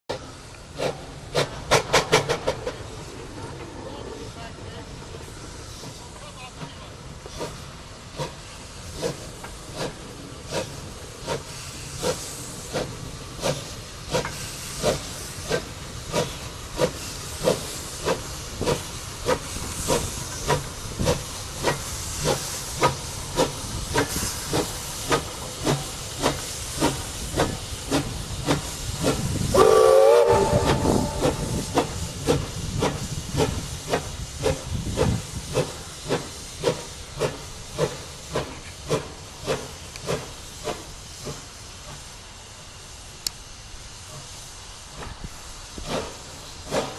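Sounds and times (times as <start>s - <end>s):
steam locomotive exhaust chuffs: 0.1s - 3.6s, 4.3s - 46.9s
steam hissing: 0.1s - 46.9s
locomotive whistle: 29.5s - 31.6s.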